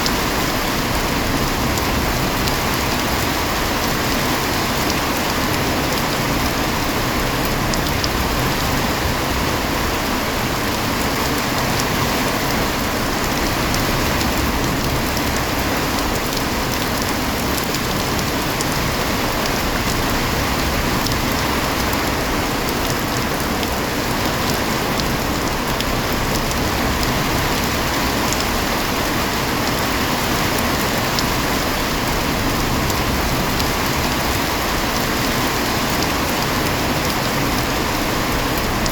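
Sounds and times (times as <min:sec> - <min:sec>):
heavy rain pattering: 0:00.0 - 0:38.9.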